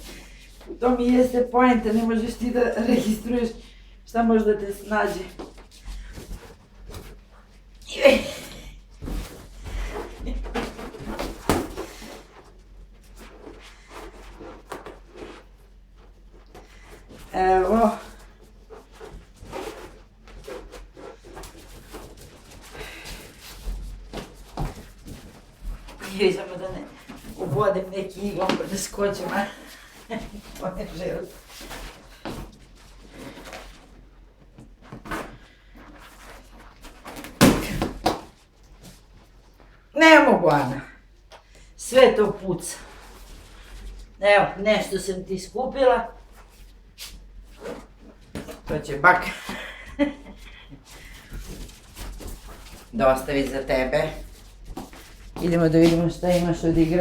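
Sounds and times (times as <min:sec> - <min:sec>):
rustling of objects handled: 0:08.8 - 0:39.9, 0:46.1 - 0:57.0.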